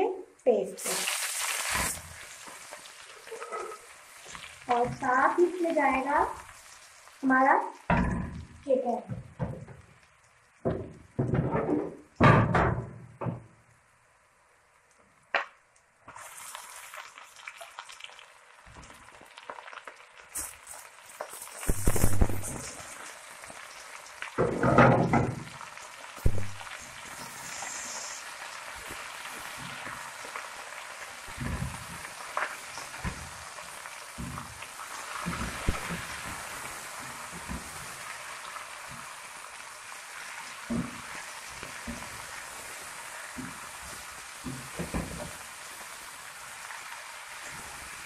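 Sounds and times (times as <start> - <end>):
oil sizzling in a pot: 0.0 - 48.0
spatula stirring knocks: 31.3 - 33.4, 34.1 - 34.6, 35.2 - 37.9, 40.7 - 42.2, 43.4 - 45.4.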